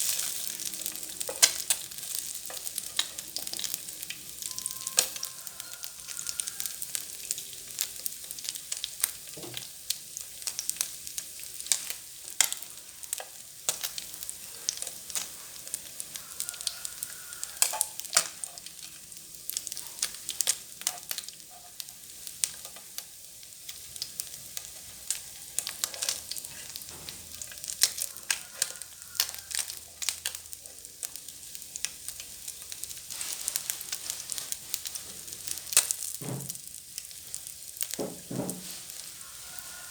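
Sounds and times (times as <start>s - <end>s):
fish frying in hot oil: 0.0s - 39.9s.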